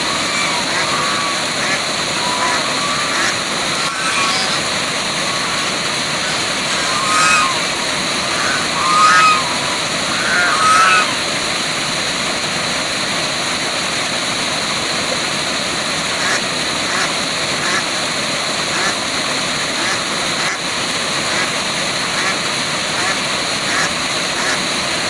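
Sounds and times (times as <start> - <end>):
short animal calls: 0.0 - 11.3
waterfall rushing: 0.0 - 25.0.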